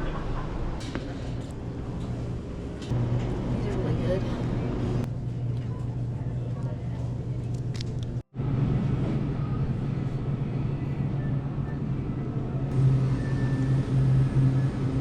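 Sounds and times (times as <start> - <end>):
truck engine and road drone: 7.3 - 15.0.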